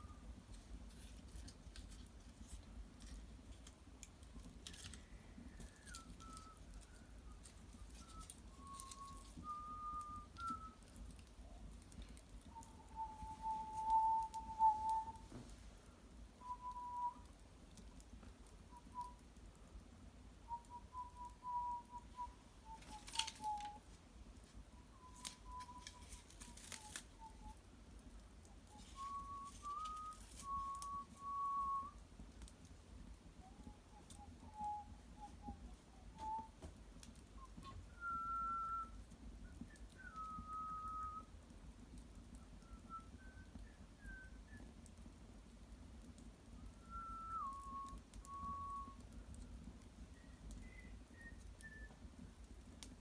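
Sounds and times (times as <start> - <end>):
wood fire crackling: 0.0 - 53.0
person whistling a slow tune: 5.1 - 10.8, 12.5 - 15.4, 16.4 - 17.3, 18.6 - 19.2, 20.4 - 23.9, 24.7 - 27.6, 28.7 - 32.0, 33.4 - 36.7, 37.3 - 41.4, 42.4 - 44.9, 46.6 - 49.1, 50.1 - 52.2.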